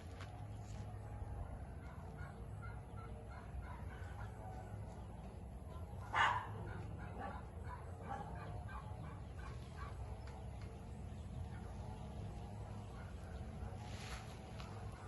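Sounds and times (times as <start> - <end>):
farm birds calling: 0.0 - 15.0
animal barking call: 1.8 - 4.8, 6.0 - 10.2.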